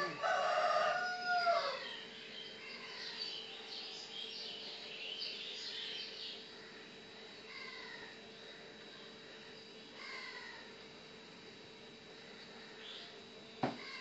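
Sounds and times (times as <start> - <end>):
long bird call: 0.0 - 8.7, 9.8 - 10.8.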